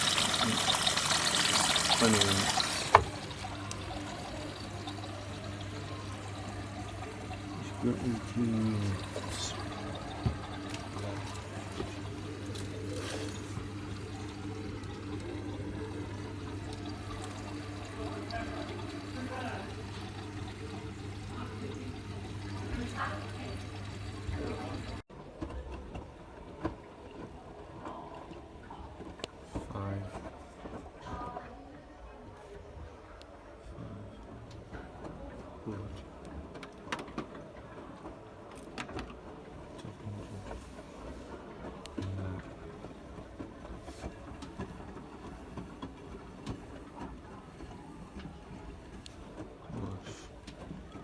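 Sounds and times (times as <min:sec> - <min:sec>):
steady low hum: 0:00.0 - 0:25.0
water splashing in washing machine: 0:00.0 - 0:31.5, 0:34.2 - 0:51.0.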